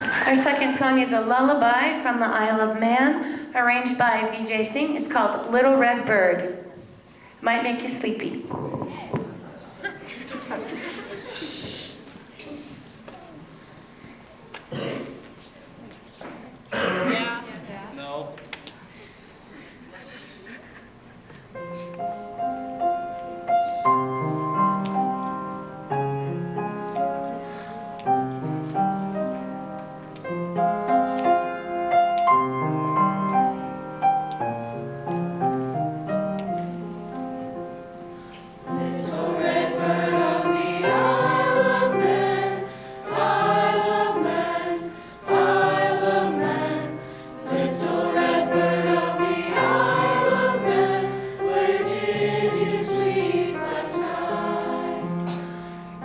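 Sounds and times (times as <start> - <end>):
soft instrumental accompaniment: 21.6 - 44.8
choir singing lullaby: 37.8 - 56.0.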